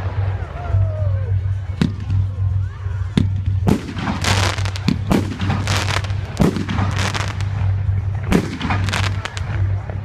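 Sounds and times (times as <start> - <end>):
fireworks booming: 3.2 - 10.0
fireworks crackling: 3.2 - 10.0.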